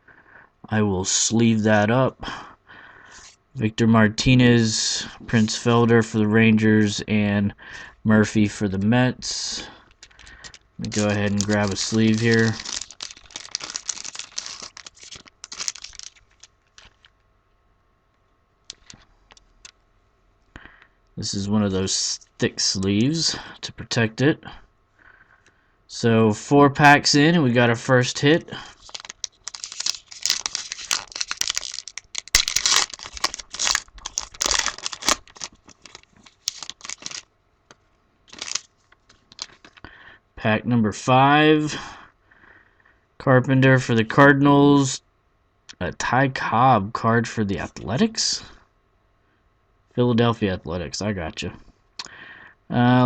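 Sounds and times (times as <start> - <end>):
plastic card sleeve crinkling: 8.7 - 17.3, 18.6 - 19.8, 28.0 - 39.9.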